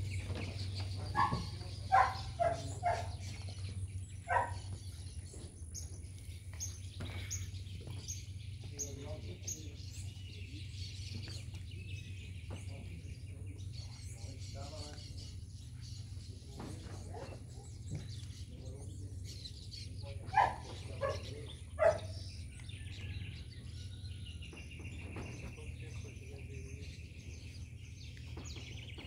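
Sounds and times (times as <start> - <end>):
birds calling: 0.0 - 29.0.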